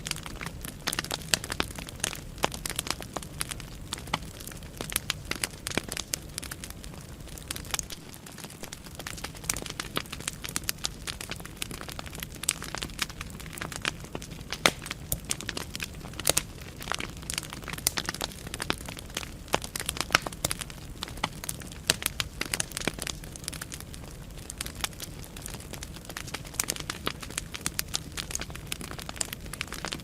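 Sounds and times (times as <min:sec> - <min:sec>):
fire crackling and popping: 0:00.0 - 0:30.0
low rumble of flame: 0:00.0 - 0:30.0.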